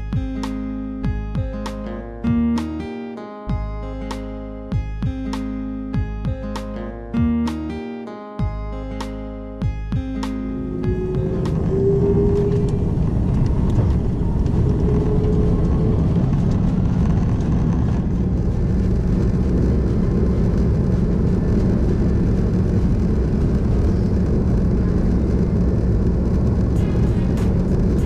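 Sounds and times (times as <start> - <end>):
jet engine cabin rumble: 10.4 - 28.0.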